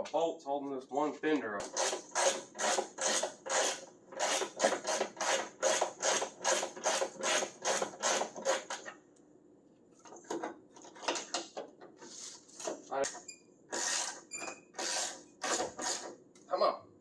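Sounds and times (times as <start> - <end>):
hand tool rasping strokes: 1.6 - 8.8, 13.7 - 16.1.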